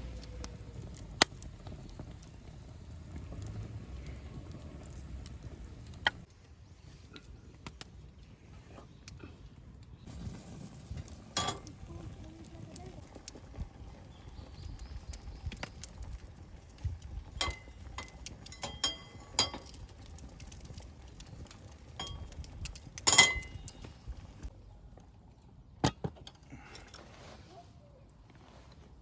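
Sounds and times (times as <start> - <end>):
metal cookware clinking: 11.4 - 11.7, 17.4 - 19.8, 23.0 - 23.7.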